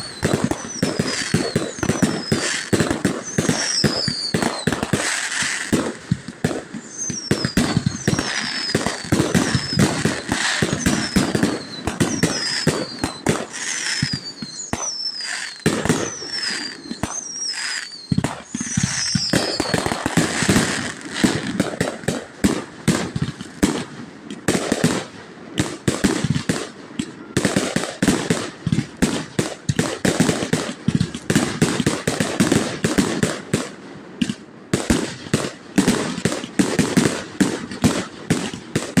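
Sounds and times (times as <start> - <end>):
high falling whistles: 0.0 - 4.7, 6.8 - 20.5
fireworks bangs and crackles: 0.0 - 39.0.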